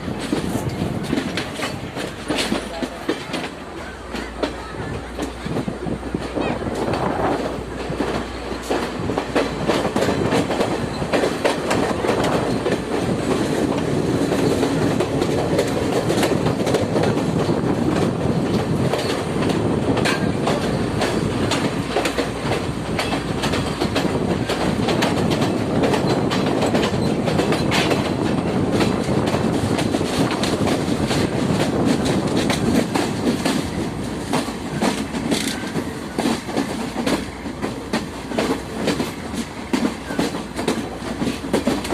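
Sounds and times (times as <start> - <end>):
wheels clattering over rail joints: 0.0 - 5.7
train rumbling: 0.0 - 41.9.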